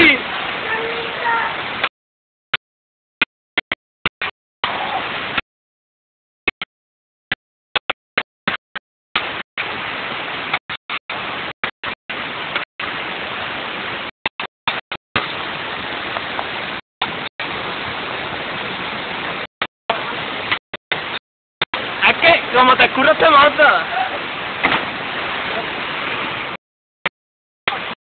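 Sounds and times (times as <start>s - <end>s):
flowing water rushing: 0.0s - 1.9s, 4.6s - 5.4s, 9.2s - 26.6s, 27.7s - 28.0s.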